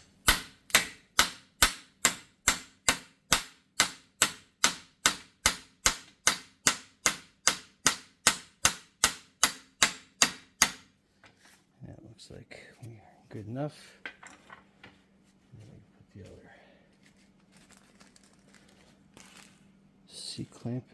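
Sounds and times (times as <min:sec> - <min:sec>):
hammer striking metal: 0:00.0 - 0:10.9.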